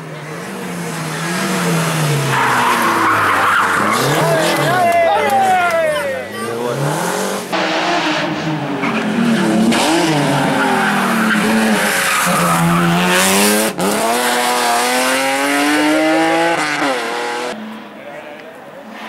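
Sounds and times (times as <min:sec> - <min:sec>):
rally car engine at high revs: 0:00.0 - 0:04.9, 0:06.3 - 0:17.6.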